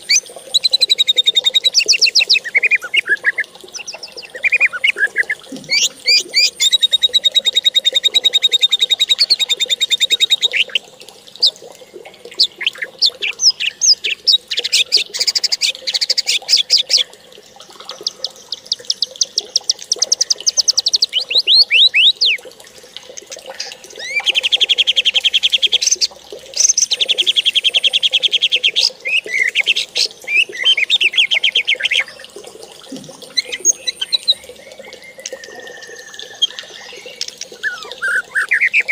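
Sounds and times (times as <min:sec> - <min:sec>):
bird singing trills: 0:00.0 - 0:10.8, 0:17.9 - 0:22.4, 0:26.6 - 0:32.3, 0:33.3 - 0:38.9.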